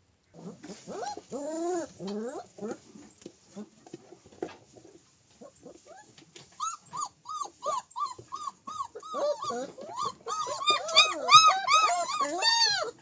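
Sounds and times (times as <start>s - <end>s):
dog whining in high yips: 5.9s - 13.0s
lower-pitched dog calling: 6.6s - 13.0s.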